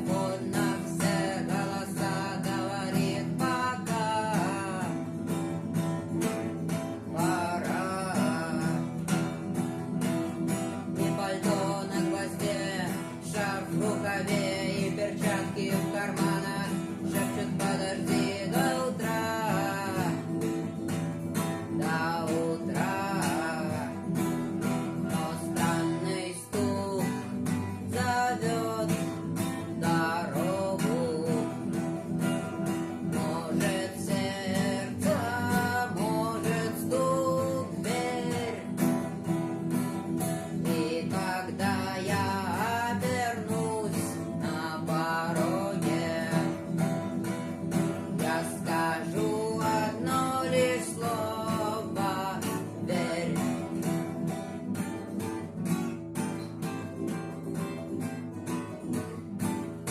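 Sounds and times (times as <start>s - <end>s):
acoustic guitar strumming: 0.0s - 59.9s.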